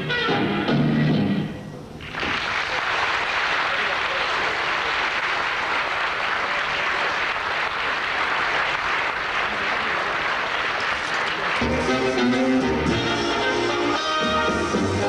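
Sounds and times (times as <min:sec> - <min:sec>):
band playing with guitar: 0:00.0 - 0:01.8, 0:11.6 - 0:15.0
audience applauding: 0:02.0 - 0:12.2.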